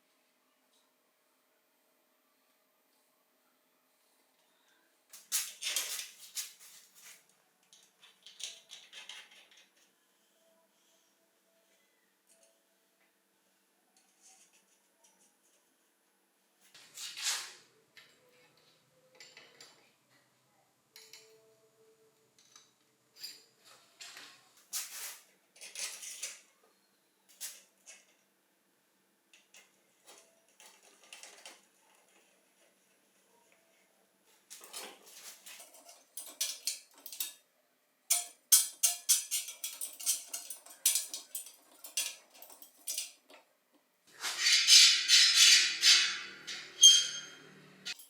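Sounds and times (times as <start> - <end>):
metal parts clinking and scraping: 25.6 - 26.4, 34.5 - 37.4, 38.1 - 43.2, 44.2 - 48.0.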